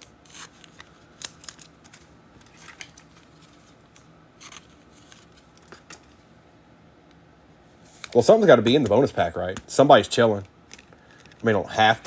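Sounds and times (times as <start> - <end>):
trading cards being handled: 0.0 - 6.3, 7.8 - 12.0
wrapper crinkling: 0.2 - 6.1.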